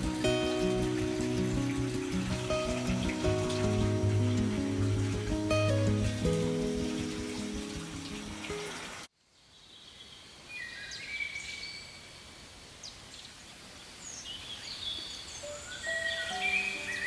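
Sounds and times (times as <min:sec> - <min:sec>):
background music: 0:00.0 - 0:08.9
birds whistling: 0:15.4 - 0:17.0.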